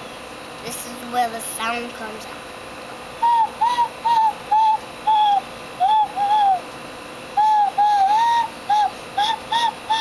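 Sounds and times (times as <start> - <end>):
bird whistle hooting notes: 3.2 - 6.7, 7.3 - 10.0.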